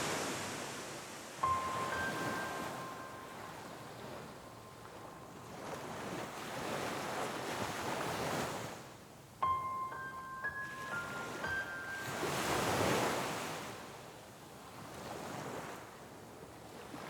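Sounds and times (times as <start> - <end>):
ocean surf washing in: 0.0 - 7.9, 9.6 - 14.0
held high music notes: 1.4 - 4.8, 9.4 - 12.7.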